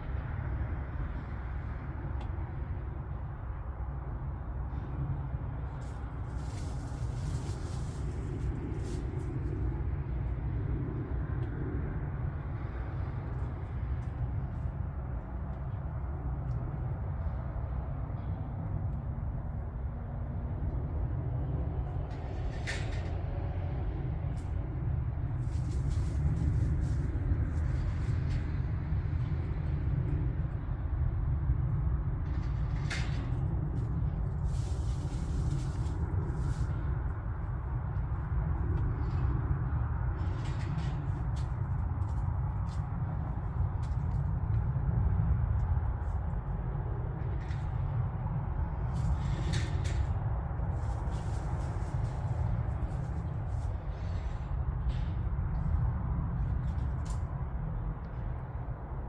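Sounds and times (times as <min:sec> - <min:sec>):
engine running with low rumble: 0:00.0 - 0:59.0
light clicks and rustles: 0:22.1 - 0:23.3, 0:25.4 - 0:28.6, 0:48.9 - 0:55.8.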